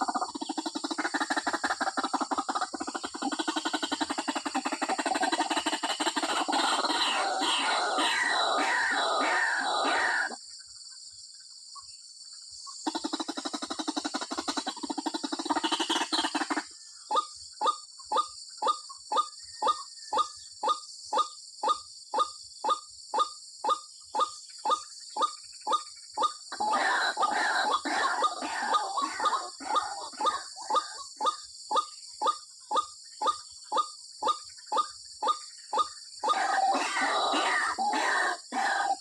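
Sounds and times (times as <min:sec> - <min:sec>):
waterhen calling: 0:00.0 - 0:10.4, 0:26.2 - 0:31.4, 0:35.2 - 0:39.0.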